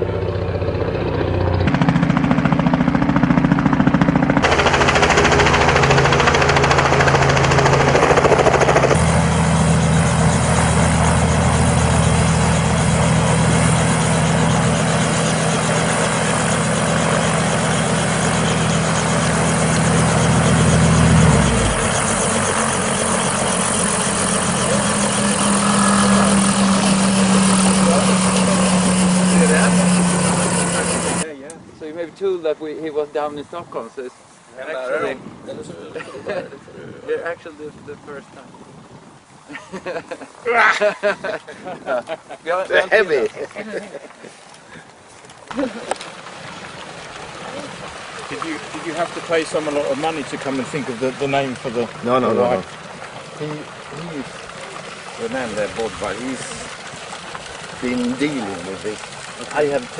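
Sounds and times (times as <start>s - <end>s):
helicopter rotor and engine: 0.0s - 31.3s, 45.5s - 59.9s.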